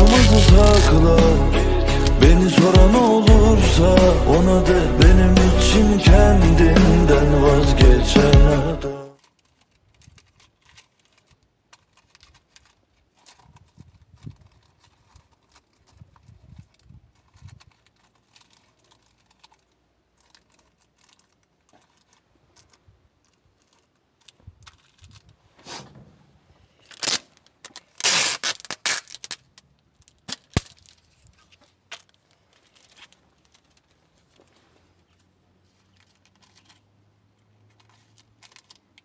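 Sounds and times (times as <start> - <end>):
rustling crackling handling noises: 0.0 - 3.3, 9.1 - 39.0.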